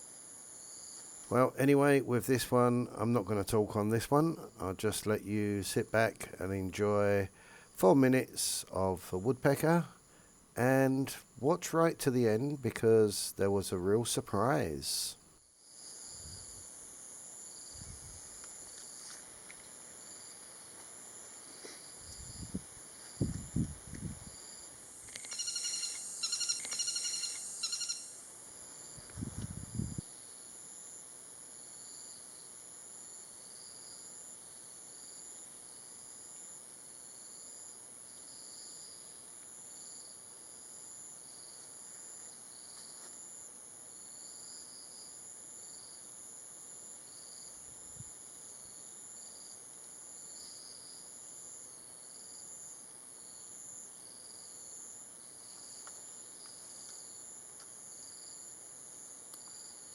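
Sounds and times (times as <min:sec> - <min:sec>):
insect chorus drone: 0:00.0 - 0:59.9
woodpecker harsh calls: 0:25.3 - 0:28.2.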